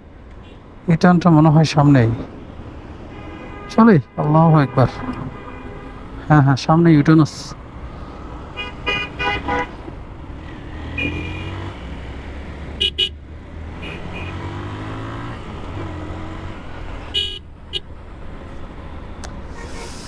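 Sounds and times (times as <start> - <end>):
road traffic engines: 0.0 - 20.0
vehicle horn beeps: 8.6 - 9.7, 11.0 - 11.7, 12.8 - 13.2, 13.8 - 14.5, 17.1 - 17.9.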